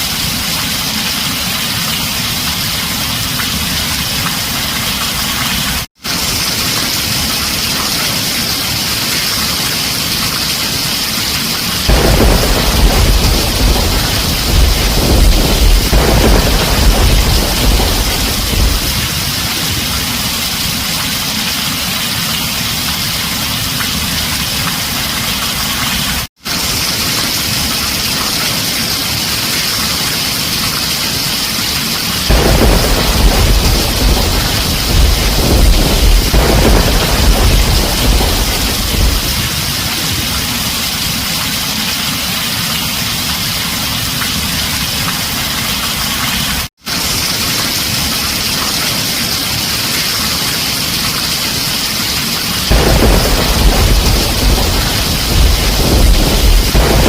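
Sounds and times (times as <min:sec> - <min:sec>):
heavy rain on a tin roof: 0:00.0 - 0:57.0
thunder rumbling: 0:11.8 - 0:21.0, 0:32.3 - 0:41.3, 0:52.7 - 0:57.0.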